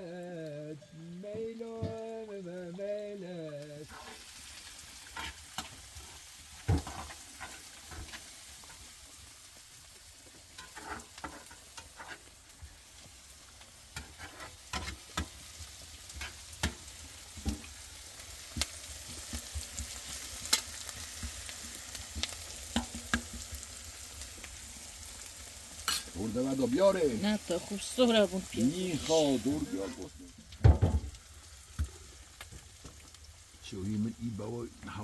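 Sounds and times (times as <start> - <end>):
food sizzling in a pan: 0.0 - 35.0
sharp pops and clicks: 22.1 - 23.4.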